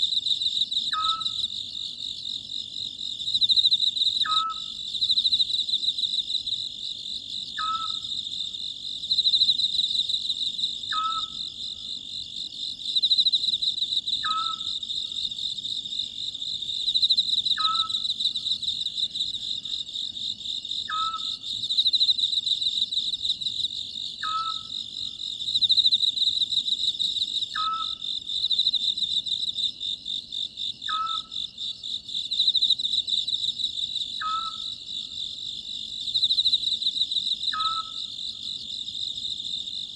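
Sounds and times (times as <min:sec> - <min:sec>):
crickets chirping: 0:00.0 - 0:39.9
owl clipped call: 0:00.9 - 0:01.3, 0:07.6 - 0:08.0, 0:10.9 - 0:11.4, 0:14.2 - 0:14.7, 0:17.6 - 0:18.0, 0:20.9 - 0:21.3, 0:24.2 - 0:24.7, 0:34.2 - 0:34.7, 0:37.5 - 0:38.0.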